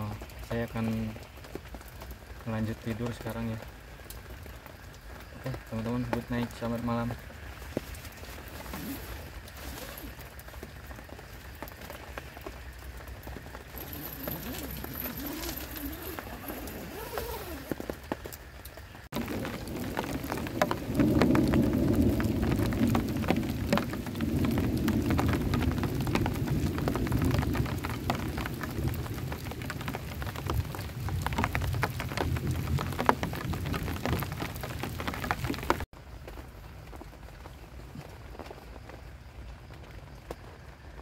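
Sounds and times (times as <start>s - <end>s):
heavy rain: 0.0s - 41.0s
low rumble of thunder: 19.1s - 35.9s.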